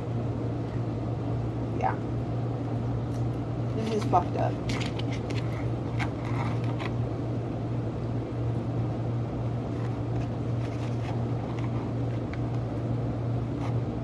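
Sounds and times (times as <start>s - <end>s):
food handling clicks and rustles: 3.8s - 7.1s, 9.7s - 12.9s.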